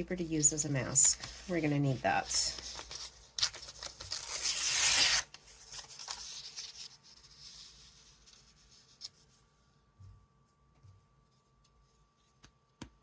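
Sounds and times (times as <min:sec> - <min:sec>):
paper handling: 0:02.4 - 0:09.3
paper tearing: 0:02.8 - 0:06.7.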